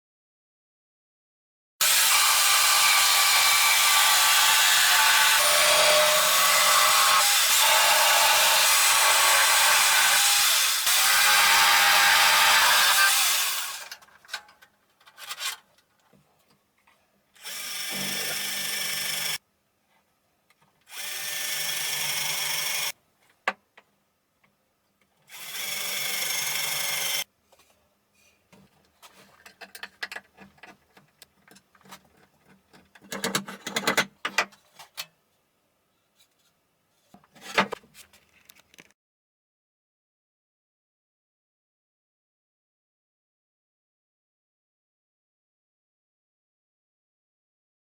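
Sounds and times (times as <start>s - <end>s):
power saw cutting wood: 1.8s - 14.0s, 17.4s - 19.4s, 20.9s - 22.9s.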